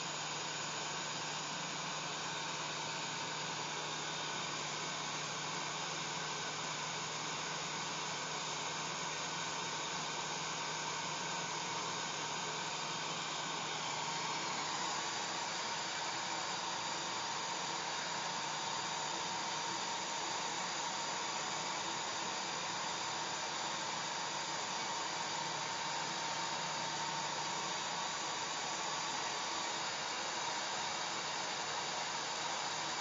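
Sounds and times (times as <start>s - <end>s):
hair dryer running: 10.1s - 33.0s.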